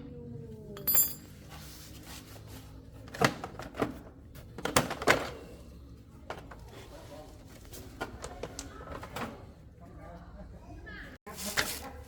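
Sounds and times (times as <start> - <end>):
metal clink with high ring: 0.8 - 1.3.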